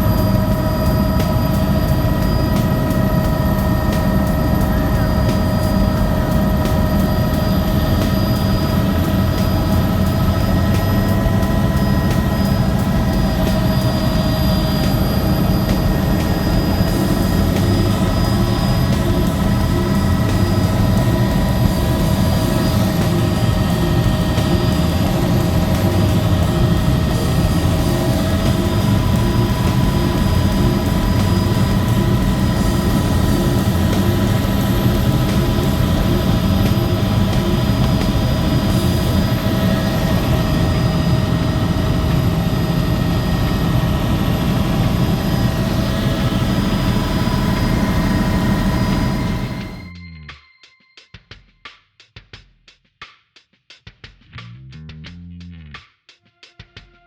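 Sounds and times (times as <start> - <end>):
helicopter engine and rotor drone: 0.0 - 50.0.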